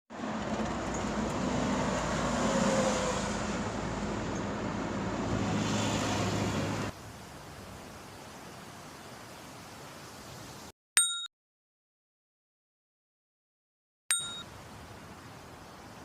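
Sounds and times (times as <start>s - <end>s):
engine hum: 0.1s - 6.9s
road rushing noise: 0.1s - 7.3s
faint steady hiss: 7.0s - 10.7s, 14.3s - 16.0s.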